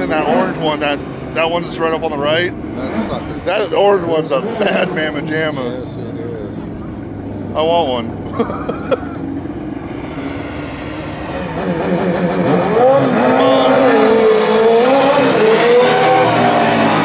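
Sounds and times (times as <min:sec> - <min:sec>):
racing lawn mower engines revving: 0:00.0 - 0:17.0.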